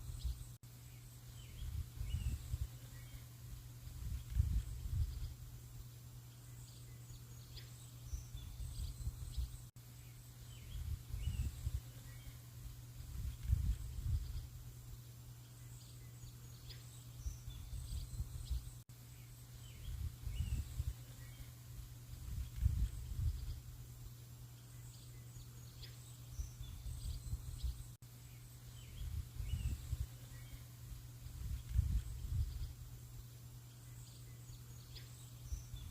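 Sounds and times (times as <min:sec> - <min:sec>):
small birds chirping: 0:00.0 - 0:35.9
steady low hum: 0:00.0 - 0:35.9
low gusty rumble: 0:31.2 - 0:32.9.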